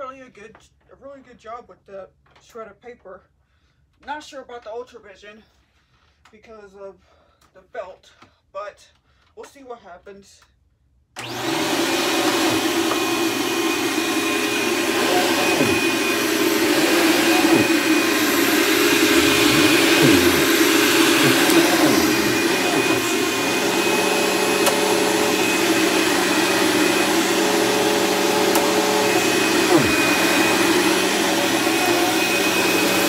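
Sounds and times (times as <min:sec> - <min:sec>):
vacuum cleaner running: 0:11.2 - 0:33.0.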